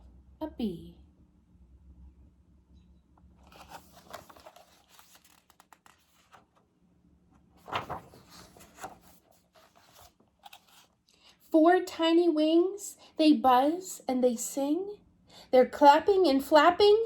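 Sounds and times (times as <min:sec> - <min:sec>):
paper pages rustling: 0:03.4 - 0:06.6, 0:07.4 - 0:11.0
paper swish: 0:07.6 - 0:10.1.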